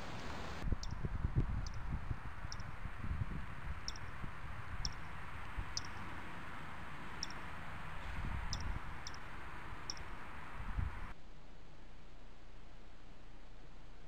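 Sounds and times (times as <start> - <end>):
outdoor hiss: 0.0 - 0.8
bird chip notes: 3.8 - 4.2, 4.8 - 6.2, 8.5 - 10.2.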